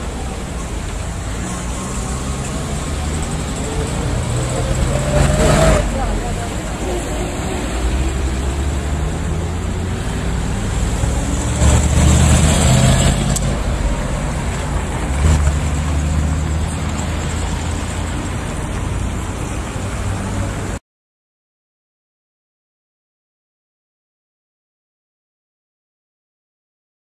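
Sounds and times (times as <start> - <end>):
car engine and road noise: 0.0 - 20.8.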